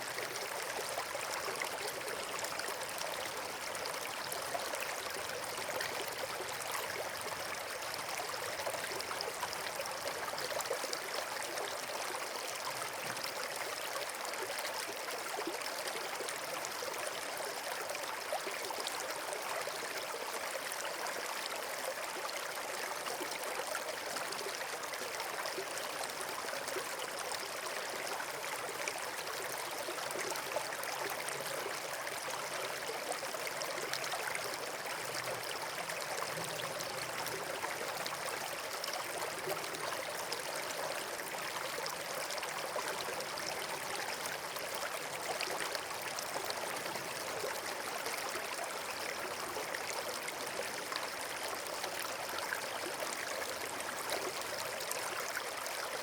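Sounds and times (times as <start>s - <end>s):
stream rushing and trickling: 0.0s - 56.0s.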